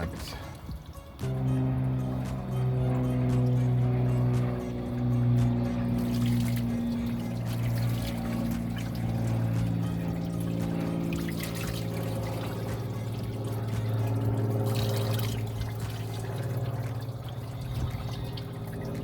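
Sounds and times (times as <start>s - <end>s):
coolant pouring into container: 5.9s - 19.0s.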